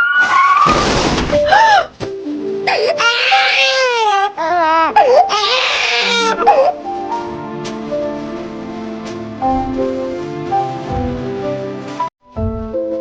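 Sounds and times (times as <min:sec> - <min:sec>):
background music: 0:01.4 - 0:13.0
wavering whimpering cries: 0:02.7 - 0:06.8.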